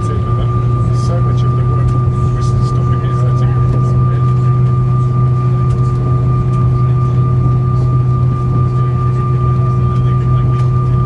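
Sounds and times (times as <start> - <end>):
aircraft engine drone: 0.0 - 11.0
high engine whine: 0.0 - 11.0.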